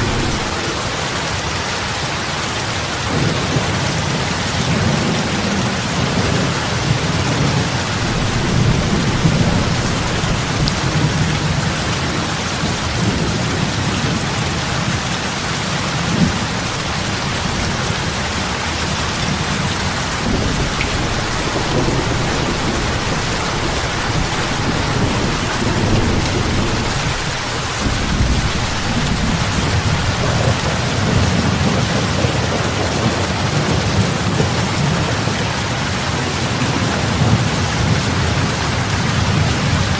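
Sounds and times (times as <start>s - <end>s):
deep rumble: 0.0s - 1.3s, 7.6s - 12.1s
heavy rain on water: 0.0s - 39.9s.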